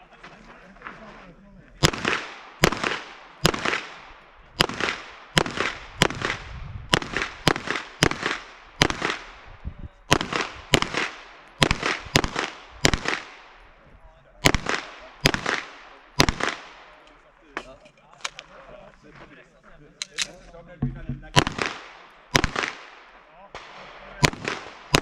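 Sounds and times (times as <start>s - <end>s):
rapid gunshots: 1.8s - 9.5s, 10.1s - 13.6s, 14.4s - 16.9s, 21.3s - 25.0s
gunshot echo: 1.8s - 13.6s, 14.4s - 17.0s, 20.1s - 25.0s.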